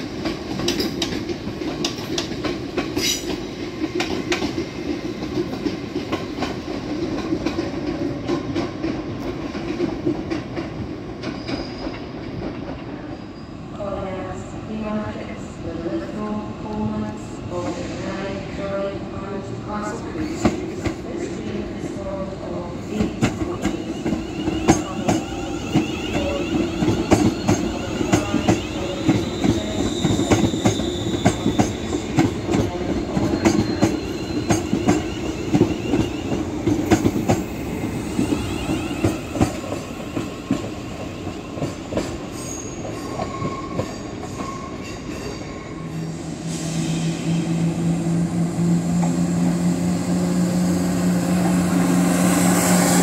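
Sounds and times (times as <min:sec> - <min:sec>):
steady low train hum: 0:00.0 - 0:53.0
train wheels clicking over joints: 0:00.1 - 0:12.9, 0:23.0 - 0:45.4
faint high flange squeal: 0:23.7 - 0:31.9, 0:42.3 - 0:48.9.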